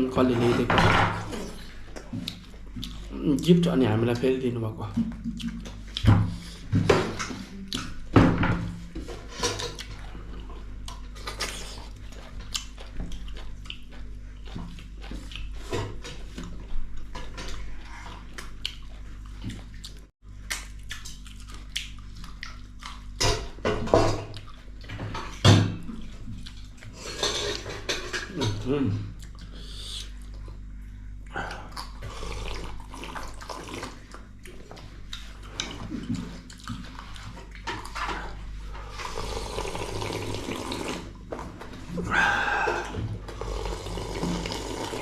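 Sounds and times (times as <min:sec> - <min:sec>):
wet chewing and slurping: 0:01.4 - 0:03.2, 0:09.3 - 0:23.4, 0:24.2 - 0:28.3, 0:29.1 - 0:45.0
mouth clicks and smacks: 0:05.1 - 0:06.1, 0:19.4 - 0:23.0.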